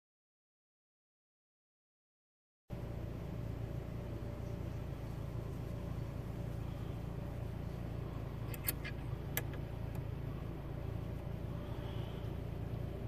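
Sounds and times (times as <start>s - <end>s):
vehicle engine rumbling: 2.7s - 13.0s
sharp clicks: 8.5s - 10.0s.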